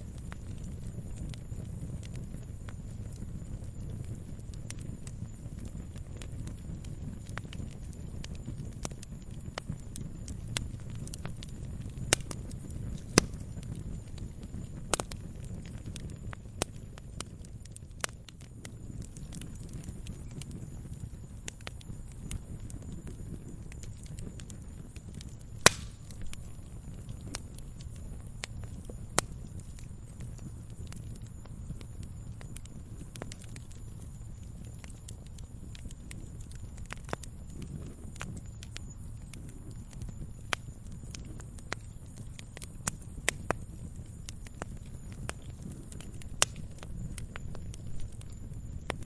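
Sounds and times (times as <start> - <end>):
campfire crackling: 0.0 - 49.0
low rumble of flames: 0.0 - 49.0
loud fire pop: 25.6 - 26.3.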